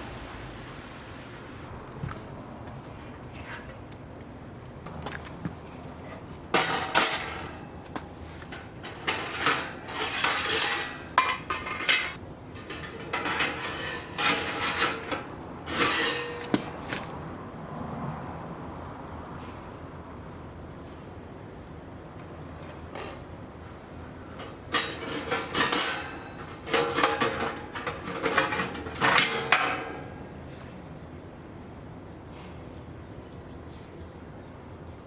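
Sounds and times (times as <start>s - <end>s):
metal clattering and scraping: 6.6s - 17.1s, 24.3s - 30.2s.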